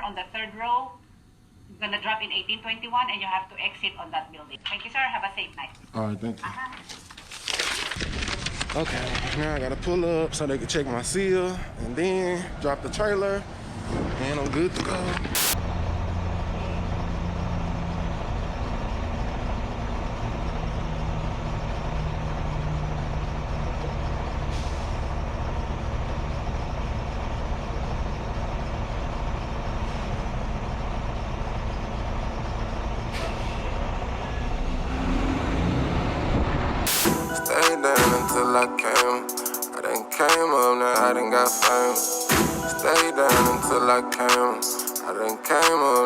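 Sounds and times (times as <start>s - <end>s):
diesel truck engine running: 9.4s - 37.4s.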